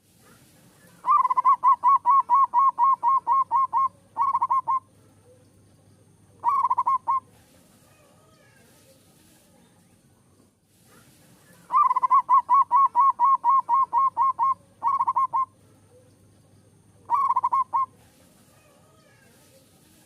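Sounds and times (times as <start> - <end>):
dove cooing: 0.7 - 5.5, 6.4 - 8.6, 11.5 - 16.2, 17.0 - 20.0.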